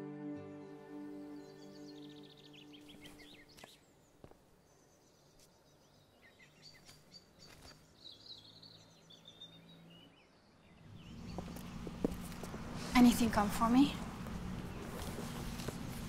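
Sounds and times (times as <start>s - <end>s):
music: 0.0s - 3.3s
birdsong chirps and trills: 0.5s - 12.0s.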